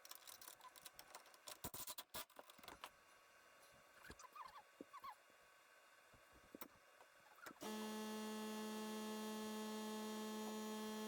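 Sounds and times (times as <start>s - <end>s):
air compressor humming: 7.6s - 11.0s.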